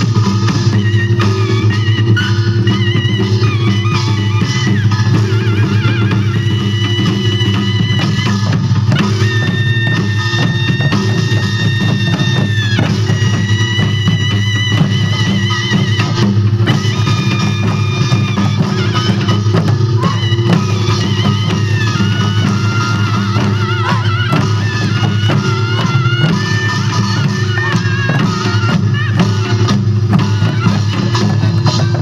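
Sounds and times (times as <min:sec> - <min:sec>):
drums beaten in dense rhythm: 0:00.0 - 0:32.0
high wavering melody: 0:09.0 - 0:32.0.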